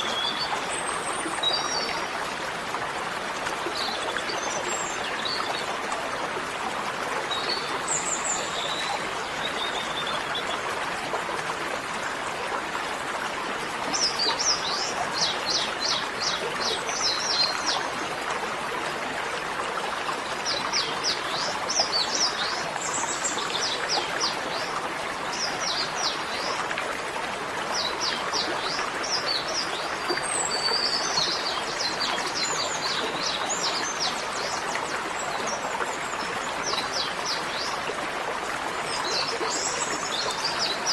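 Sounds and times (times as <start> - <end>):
running water rushing: 0.0 - 40.9.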